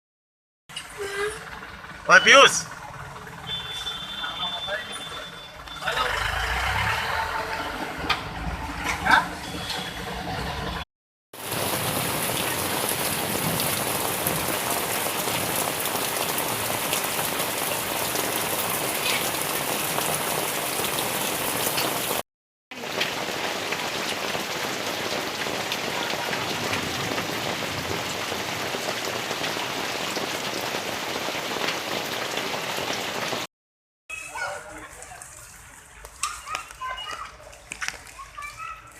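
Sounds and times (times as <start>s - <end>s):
heavy rain downpour: 11.4s - 33.5s.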